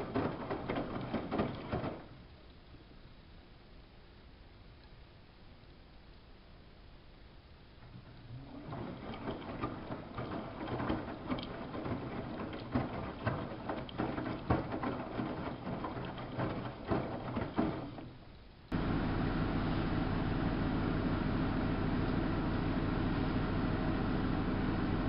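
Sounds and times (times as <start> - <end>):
washing machine clicks and knocks: 0.0 - 2.1, 8.7 - 18.1
washing machine motor hum: 0.0 - 2.2, 7.9 - 25.0
laundry and water sloshing: 8.4 - 18.2.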